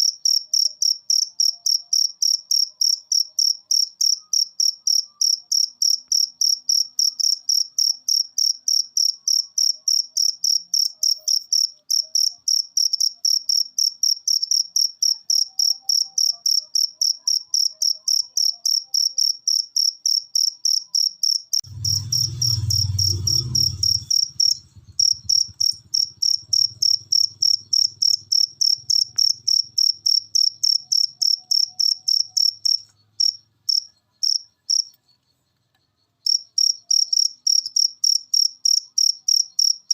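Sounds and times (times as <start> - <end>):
cricket chirping: 0.0 - 39.9
low rumble: 21.7 - 28.2.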